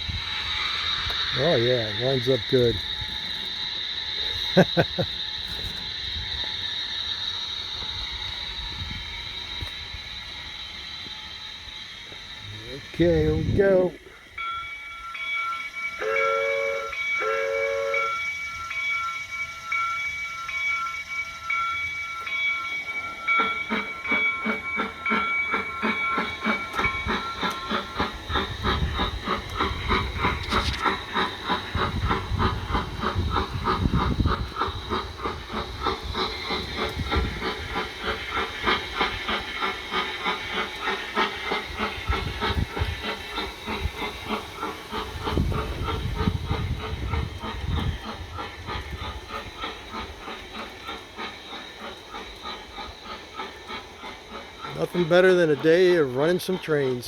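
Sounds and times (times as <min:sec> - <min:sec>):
steam locomotive chuffs: 0:00.0 - 0:57.0
model train whistle toots: 0:14.4 - 0:19.3.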